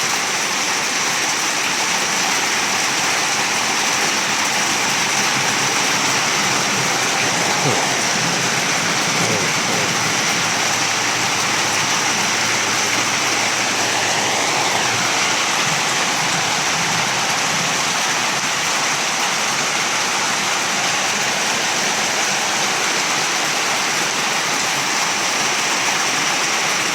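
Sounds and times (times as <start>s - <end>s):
heavy rain: 0.0s - 26.9s
water running: 1.6s - 22.6s.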